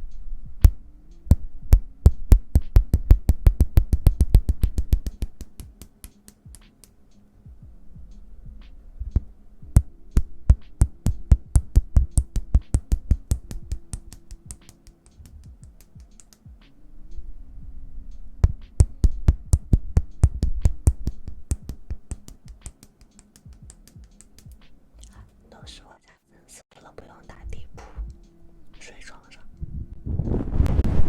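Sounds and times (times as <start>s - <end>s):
hands tapping: 1.7s - 7.0s, 9.2s - 16.6s, 18.4s - 24.7s.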